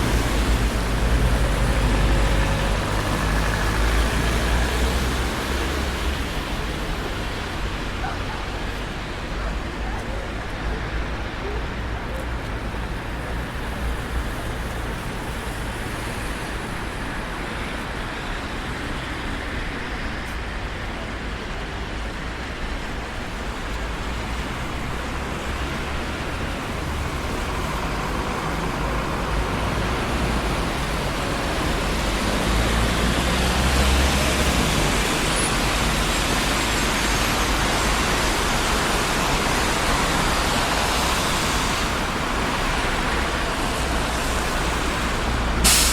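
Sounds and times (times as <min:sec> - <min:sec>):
city road traffic rumble: 0:00.0 - 0:45.9
loud vehicle passing close: 0:25.0 - 0:45.9.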